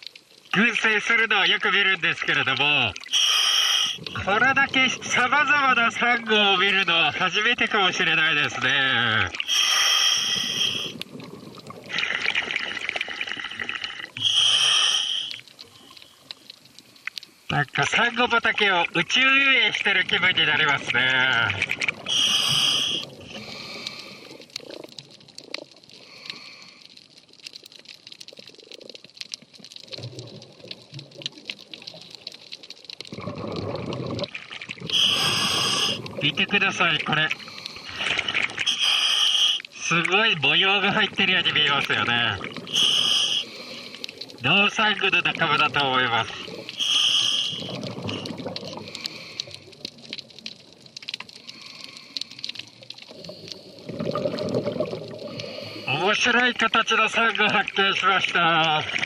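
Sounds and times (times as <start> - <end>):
regulator bubbling underwater: 1.6 - 17.0, 18.6 - 26.2, 27.7 - 59.0
rush of exhaled bubbles: 2.8 - 6.0, 8.4 - 16.4, 20.2 - 26.8, 29.8 - 39.9, 40.9 - 56.2, 58.6 - 59.0
sharp crackling clicks: 15.2 - 17.5, 20.8 - 22.1, 22.9 - 34.9, 41.1 - 55.9
faint scattered clicks: 15.3 - 17.8, 47.6 - 53.6.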